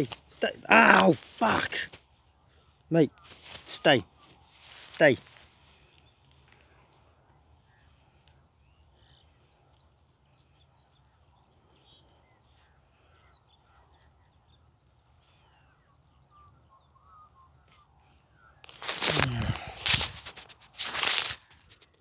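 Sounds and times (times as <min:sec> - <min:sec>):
faint bird chirps: 0:02.1 - 0:19.6.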